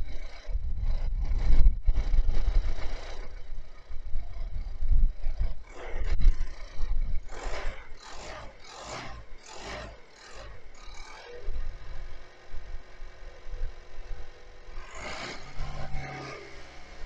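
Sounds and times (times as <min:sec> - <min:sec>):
rhythmic rubbing strokes: 0:00.0 - 0:17.0.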